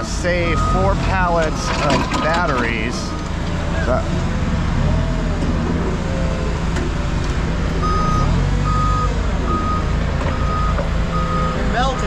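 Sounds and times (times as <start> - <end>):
vehicle engine low rumble: 0.0 - 12.0
reversing alarm beeping: 0.4 - 1.1, 7.8 - 12.0.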